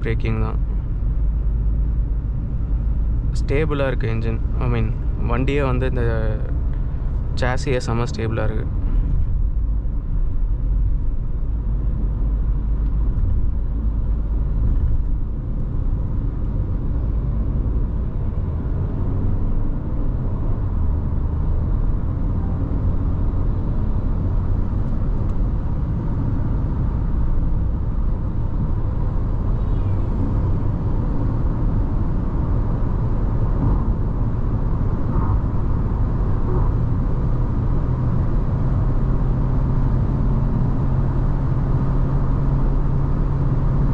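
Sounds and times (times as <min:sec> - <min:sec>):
car engine running: 0:00.0 - 0:43.9
tyre and road noise: 0:00.0 - 0:43.9.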